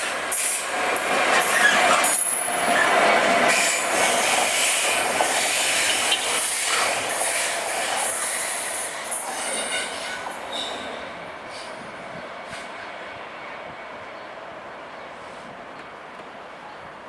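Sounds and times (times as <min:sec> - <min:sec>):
train rushing and rumbling past: 0:00.0 - 0:17.0
train wheel squeal: 0:01.3 - 0:12.9.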